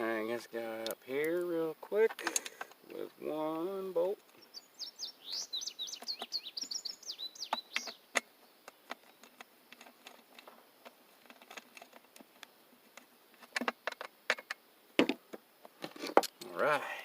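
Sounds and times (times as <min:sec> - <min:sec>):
birds chirping: 0:00.0 - 0:15.4
hand tools clicking and knocking: 0:02.0 - 0:02.8, 0:07.4 - 0:15.2.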